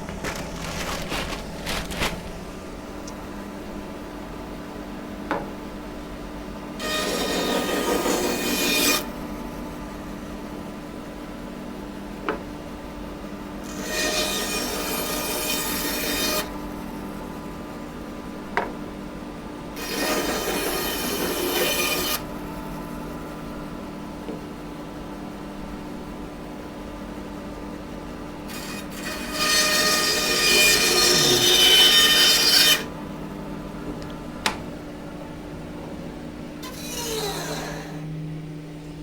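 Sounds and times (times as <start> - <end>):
bandsaw blade cutting wood: 0.0 - 2.4, 28.5 - 32.9, 36.6 - 38.0
bandsaw motor hum: 0.0 - 3.8, 28.4 - 33.2, 33.9 - 38.6.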